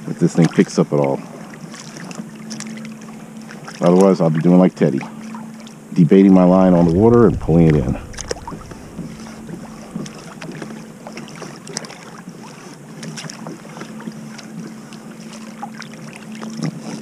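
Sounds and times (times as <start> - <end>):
steady low hum: 6.1 - 11.2
water dripping and splashing: 6.8 - 10.5.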